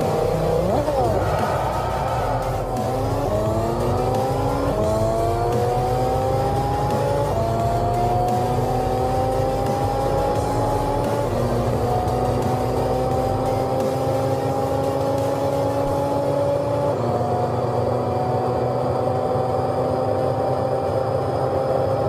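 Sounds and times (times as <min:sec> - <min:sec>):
car engine at full throttle: 0:00.0 - 0:22.0.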